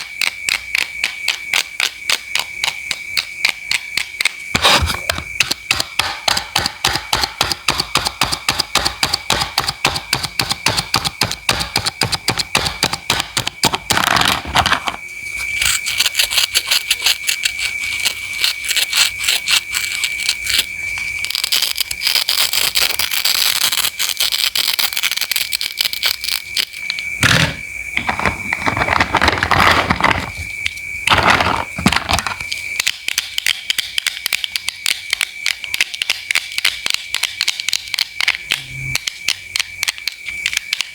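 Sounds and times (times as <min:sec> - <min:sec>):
knife crunching scraping cuts: 0:04.6 - 0:05.4.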